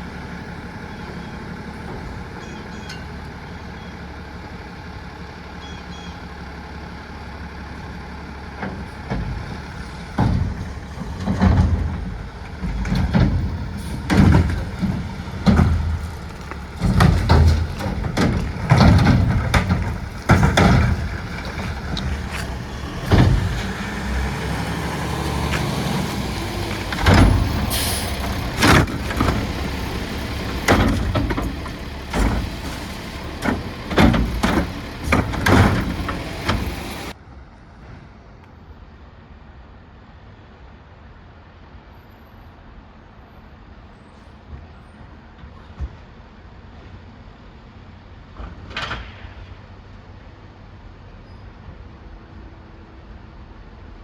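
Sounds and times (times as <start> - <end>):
garbage truck running: 0.0 - 37.2
bins banging and clunking: 8.5 - 37.2.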